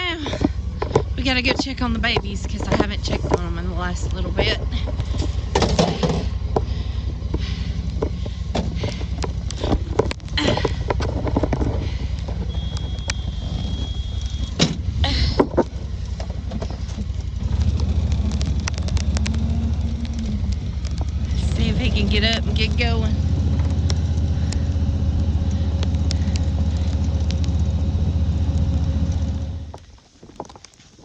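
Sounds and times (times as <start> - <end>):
vehicle engine running: 0.0 - 29.9
clicks and knocks: 0.2 - 21.3.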